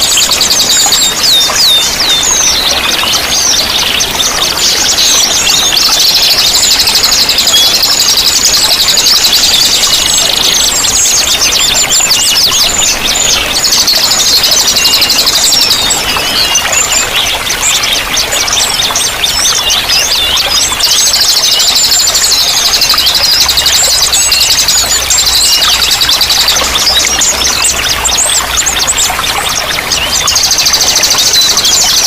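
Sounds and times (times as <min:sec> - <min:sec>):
running water rushing: 0:00.0 - 0:32.0
songbirds singing and chirping: 0:00.0 - 0:32.0.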